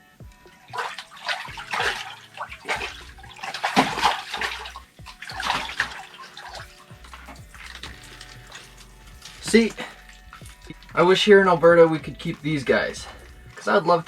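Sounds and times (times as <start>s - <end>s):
water splashing and sloshing: 0.2s - 14.0s.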